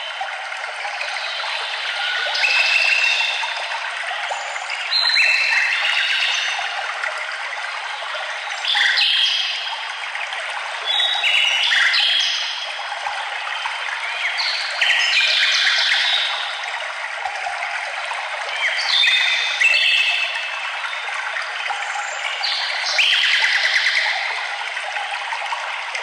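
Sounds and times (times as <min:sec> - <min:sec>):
songbirds singing: 0:01.0 - 0:06.8.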